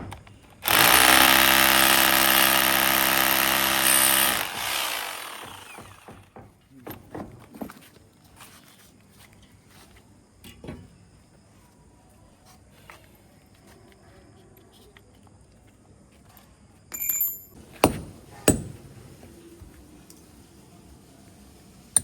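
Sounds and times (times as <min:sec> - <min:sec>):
sharp knocks: 0:17.8 - 0:18.8.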